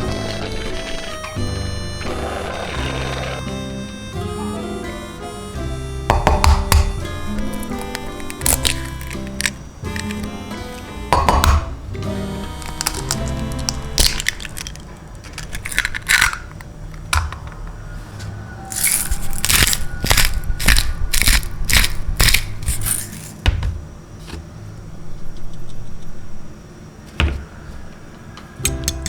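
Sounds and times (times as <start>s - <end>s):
rapid knocks: 6.1s - 7.0s
objects clicking and clattering: 7.4s - 10.3s, 12.6s - 17.8s, 18.7s - 23.5s.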